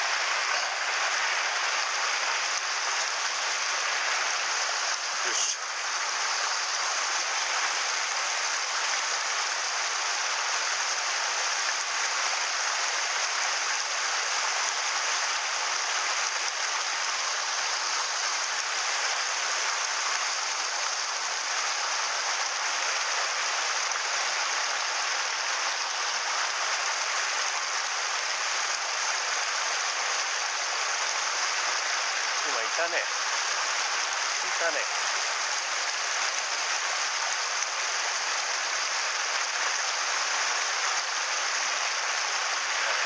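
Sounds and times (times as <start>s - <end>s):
stream flowing over rocks: 0.0s - 43.0s.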